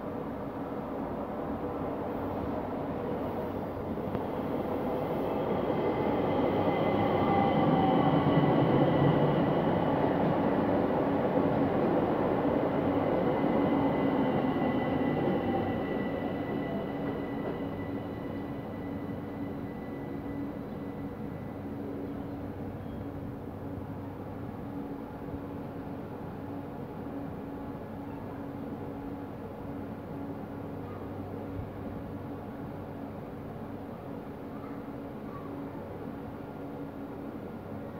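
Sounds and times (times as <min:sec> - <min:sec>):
train high whine: 0:00.0 - 0:37.9
train wheels rumbling on rails: 0:02.2 - 0:21.6.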